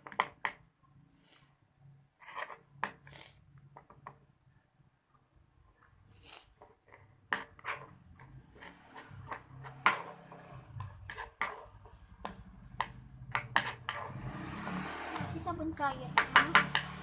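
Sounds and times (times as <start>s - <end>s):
stirrer scraping small container: 6.2s - 15.3s.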